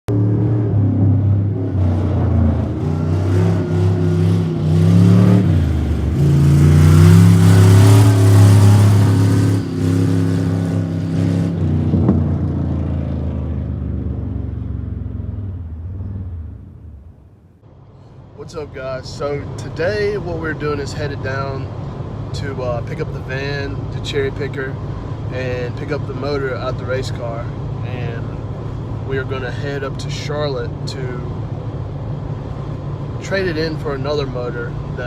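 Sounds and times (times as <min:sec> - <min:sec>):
car engine revving: 0:00.1 - 0:17.3.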